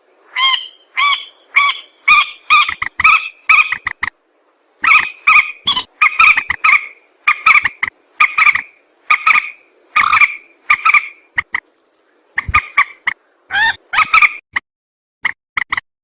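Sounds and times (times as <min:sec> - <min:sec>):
bird calling harsh notes: 0:00.3 - 0:04.1, 0:04.8 - 0:11.6, 0:12.4 - 0:14.4.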